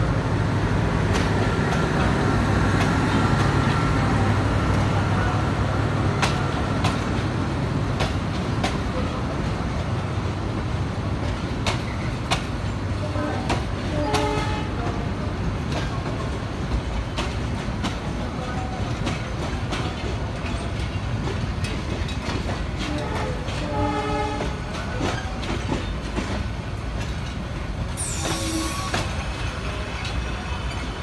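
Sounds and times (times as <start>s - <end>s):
low train rumble: 0.0s - 31.0s
train wheels clacking over joints: 11.2s - 15.0s, 15.6s - 31.0s.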